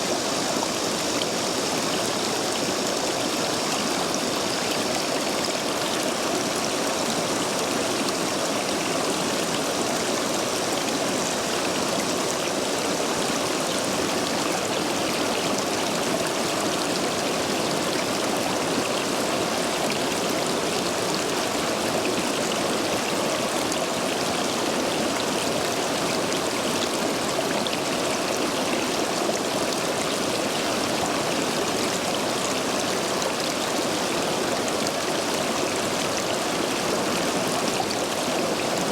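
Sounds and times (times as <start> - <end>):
stream water rushing over stones: 0.0 - 38.9.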